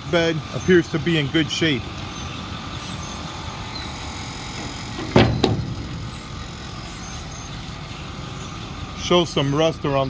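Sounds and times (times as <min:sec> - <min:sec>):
steady low rumble: 0:03.9 - 0:08.3
sharp knocks: 0:04.6 - 0:06.2.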